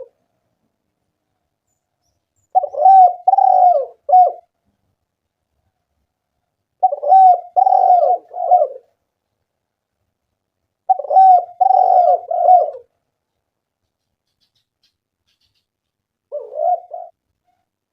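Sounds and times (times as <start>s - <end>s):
dove cooing: 2.5s - 4.5s, 6.8s - 9.0s, 10.8s - 12.9s, 16.3s - 17.2s.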